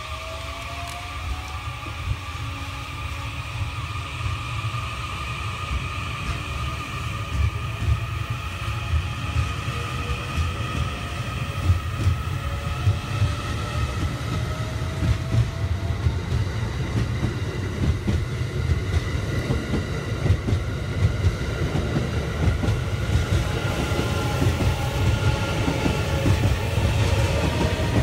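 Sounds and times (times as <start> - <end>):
train wheels rumbling: 0.0 - 28.0
wheels clacking on rails: 5.7 - 28.0.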